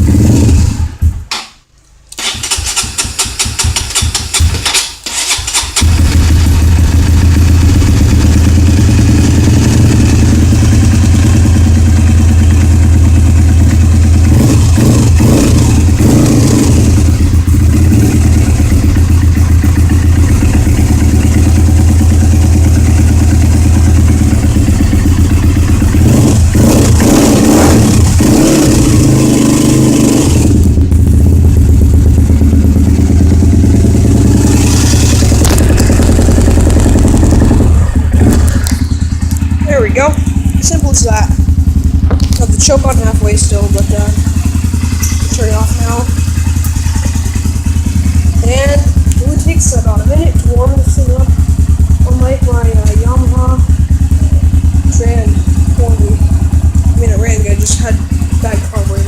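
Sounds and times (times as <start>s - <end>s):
dirt bike engine running: 0.0s - 1.3s, 2.2s - 59.0s.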